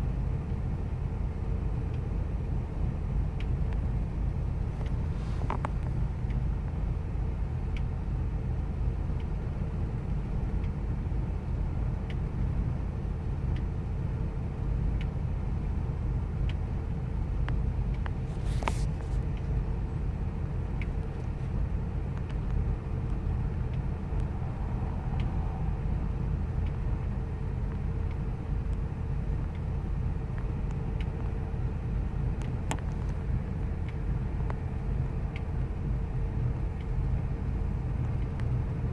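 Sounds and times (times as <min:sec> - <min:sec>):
faint ticks: 0:17.4 - 0:19.8, 0:20.4 - 0:26.0.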